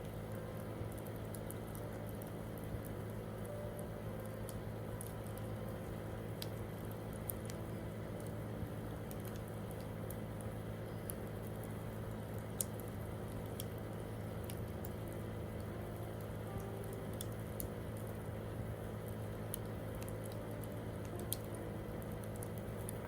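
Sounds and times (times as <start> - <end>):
campfire crackling and popping: 0.0 - 23.0
steady low hum: 0.0 - 23.0.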